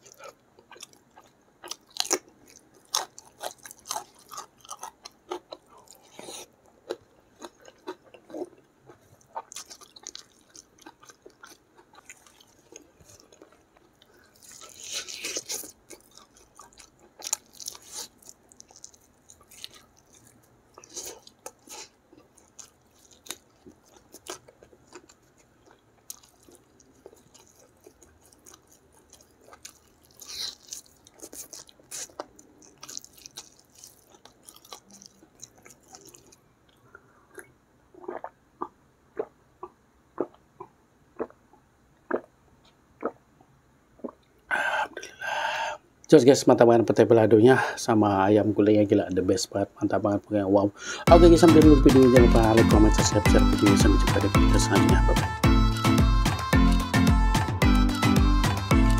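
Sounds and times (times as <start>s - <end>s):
person chewing with wet mouth clicks: 2.9s - 41.4s, 42.1s - 43.2s.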